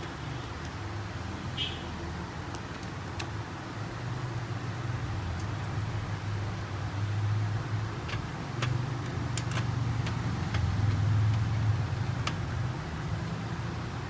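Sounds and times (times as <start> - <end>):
printer parts clicking: 8.0 - 11.4.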